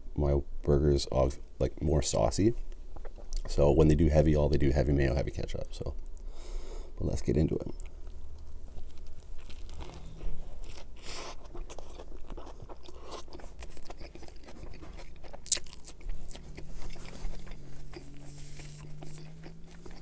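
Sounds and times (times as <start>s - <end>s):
crunching and chewing: 7.7s - 20.0s.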